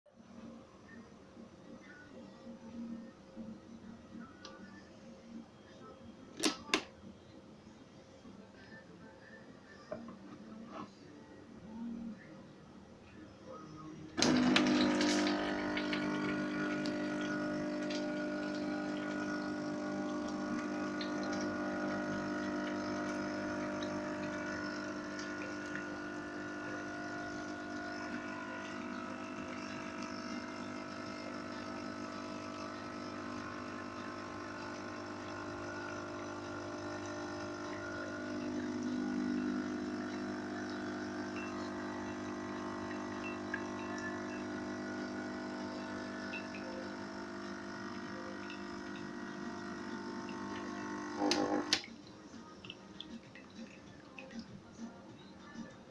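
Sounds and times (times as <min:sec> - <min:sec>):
espresso machine pump humming: 0:14.2 - 0:51.8.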